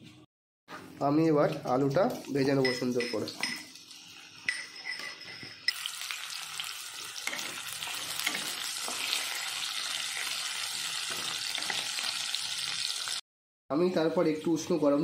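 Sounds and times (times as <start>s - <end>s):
potato wedges sizzling in oil: 5.7s - 13.2s.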